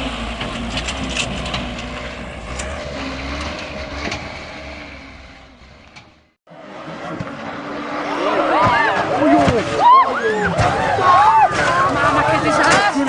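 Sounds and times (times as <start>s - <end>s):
heavy vehicle engine rumbling: 0.0s - 13.0s.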